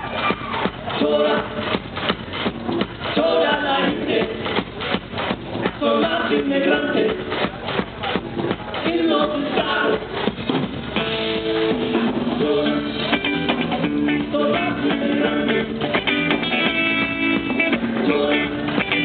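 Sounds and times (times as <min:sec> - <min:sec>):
drum kit: 0:00.0 - 0:19.0
live band through pa: 0:00.0 - 0:19.0
strummed guitar: 0:00.0 - 0:19.0.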